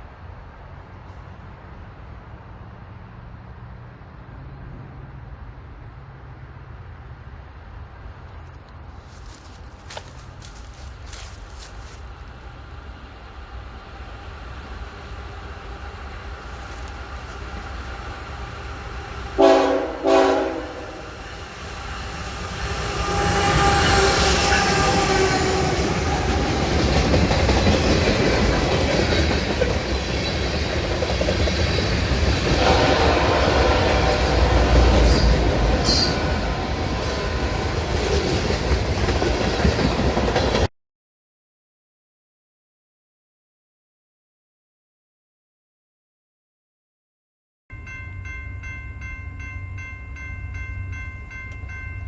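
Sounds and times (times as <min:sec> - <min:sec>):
train wheels rumbling on rail: 0:00.0 - 0:40.7
locomotive horn blasts: 0:19.4 - 0:21.3, 0:22.4 - 0:26.4, 0:32.4 - 0:38.4
wheels clicking over rail joints: 0:23.4 - 0:32.7, 0:34.5 - 0:40.7.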